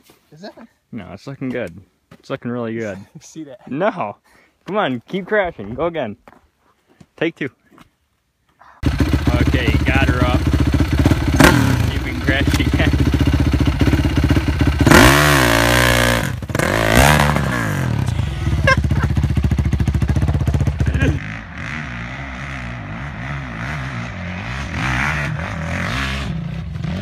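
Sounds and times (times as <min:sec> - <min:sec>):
dirt bike engine revving: 0:08.8 - 0:27.0.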